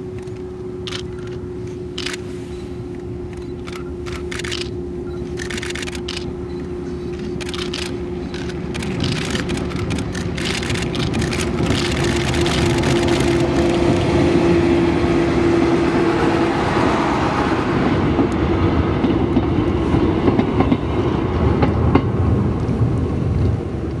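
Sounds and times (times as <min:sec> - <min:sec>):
tram engine rumble: 0:00.0 - 0:24.0
tram hum: 0:00.0 - 0:24.0
wheels clicking over rail joints: 0:02.9 - 0:14.2.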